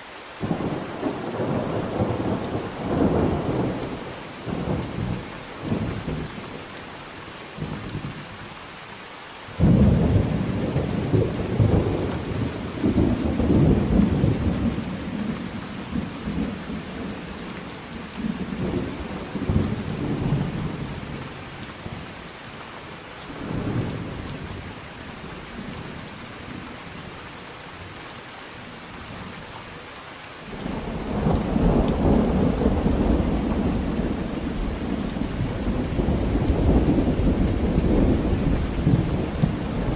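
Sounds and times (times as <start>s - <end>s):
steady rain falling: 0.0s - 39.9s
rolling thunder: 30.6s - 39.9s.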